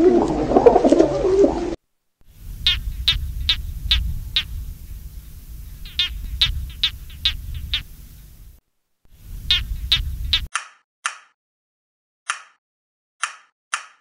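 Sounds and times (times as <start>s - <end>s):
low rumbling background noise: 0.0s - 8.6s
small animal high-pitched calls: 5.8s - 8.0s.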